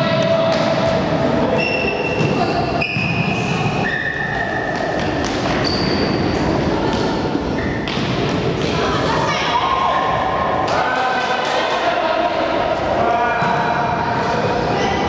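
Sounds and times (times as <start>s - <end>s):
indoor hall background: 0.0s - 15.0s
shoes squeaking on court floor: 1.5s - 8.8s.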